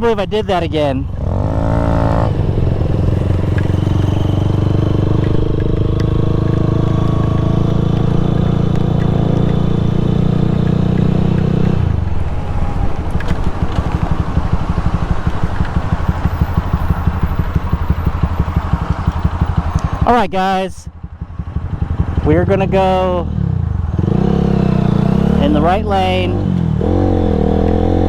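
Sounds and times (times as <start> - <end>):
small motorcycle engine running: 1.1 - 20.1.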